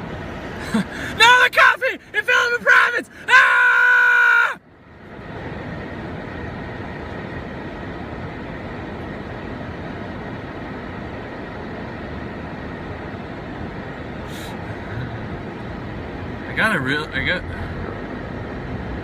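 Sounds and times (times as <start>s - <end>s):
car engine and road rumble: 0.0s - 19.0s
hiss of outside air: 4.7s - 16.7s.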